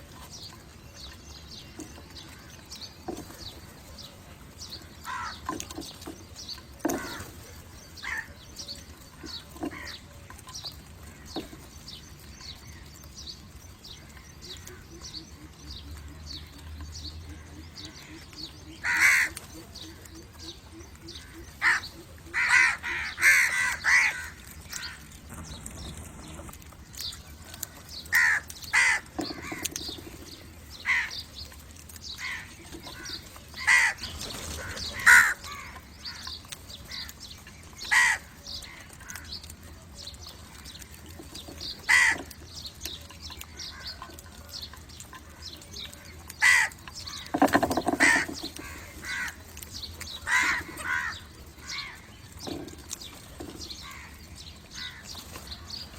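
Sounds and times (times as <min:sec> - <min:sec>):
crows cawing: 0:05.0 - 0:05.5, 0:06.9 - 0:07.3, 0:08.0 - 0:08.3, 0:18.8 - 0:19.4, 0:21.2 - 0:25.1, 0:28.1 - 0:29.7, 0:30.8 - 0:31.2, 0:32.2 - 0:36.3, 0:37.9 - 0:39.3, 0:41.8 - 0:42.3, 0:46.4 - 0:49.5, 0:50.2 - 0:52.6, 0:53.8 - 0:54.2, 0:54.8 - 0:55.1.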